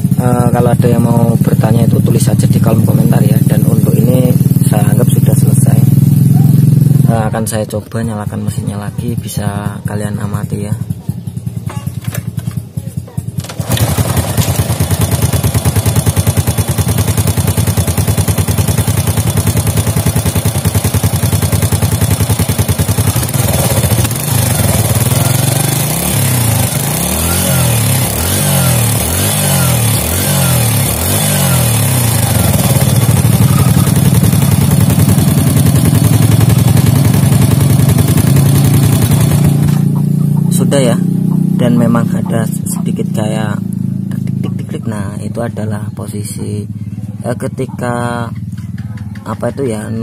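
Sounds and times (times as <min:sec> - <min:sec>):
engine ticking: 0:00.0 - 0:50.0
motorcycle engine idling and revving: 0:00.0 - 0:50.0.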